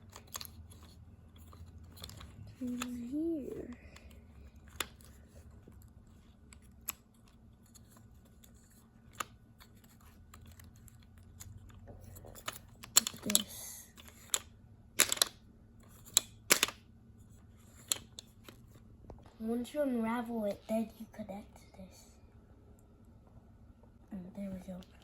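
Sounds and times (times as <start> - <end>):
clicks of kit parts fitted: 15.0 - 15.4, 16.2 - 16.8.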